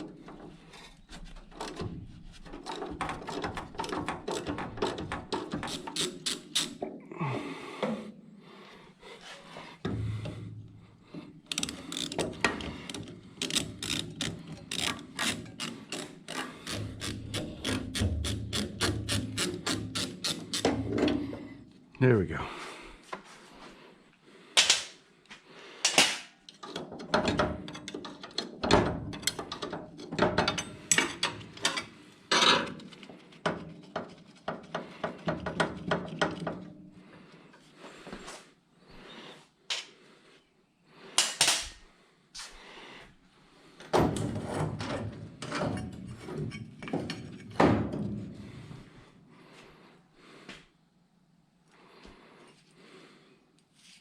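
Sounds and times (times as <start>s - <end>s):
tools and sheet metal clanking: 0.0s - 7.0s, 9.8s - 21.5s, 25.9s - 36.8s, 43.8s - 48.6s.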